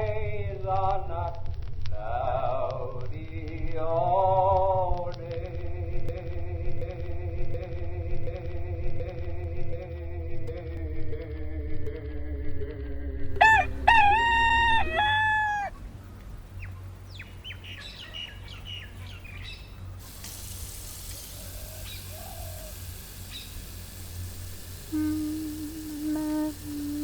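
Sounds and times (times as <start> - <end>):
steady hiss: 0.0 - 8.6, 19.8 - 27.0
low musical drone sliding down: 9.3 - 15.3
rooster crowing: 13.4 - 15.8, 21.4 - 22.8
small birds chirping: 15.6 - 20.3, 21.3 - 23.8.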